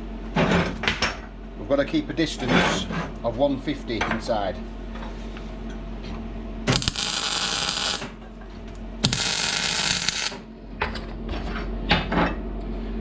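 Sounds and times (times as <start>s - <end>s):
welder crackling hiss: 6.7s - 8.1s, 9.0s - 10.4s.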